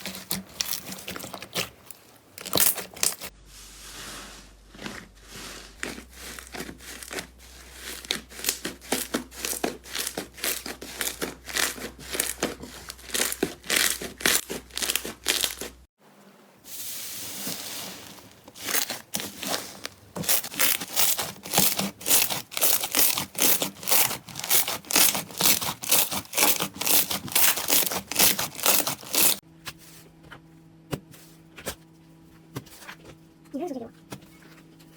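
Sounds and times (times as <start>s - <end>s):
crunchy slime crackling and popping: 0.0s - 3.3s, 5.8s - 15.8s, 18.5s - 29.4s.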